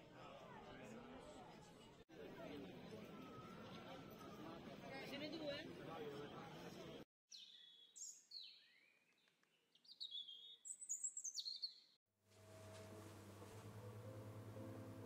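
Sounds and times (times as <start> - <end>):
bird whistling song: 7.3 - 9.2, 9.8 - 12.0.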